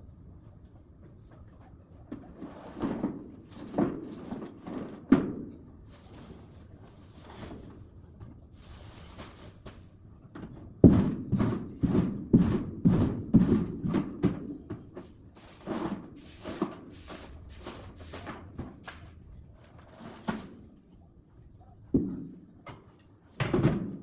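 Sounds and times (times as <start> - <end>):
wooden logs thunking onto woodpile: 23.4 - 24.0.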